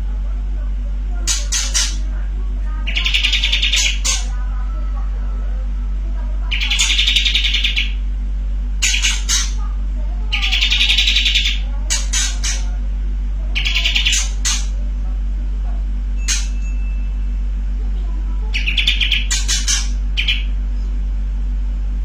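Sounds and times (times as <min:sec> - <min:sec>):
bird rattling trills: 0:01.3 - 0:02.1, 0:02.9 - 0:04.3, 0:06.5 - 0:08.0, 0:08.8 - 0:09.6, 0:10.3 - 0:12.7, 0:13.6 - 0:14.8, 0:16.2 - 0:16.6, 0:18.6 - 0:20.6.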